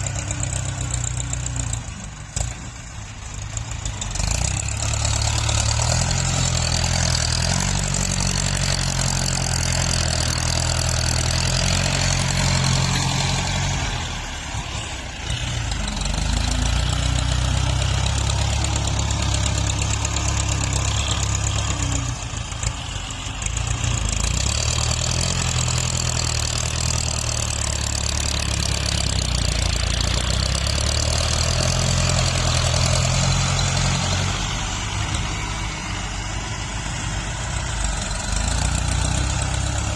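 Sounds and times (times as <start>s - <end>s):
tractor diesel engine droning: 0.0s - 39.9s.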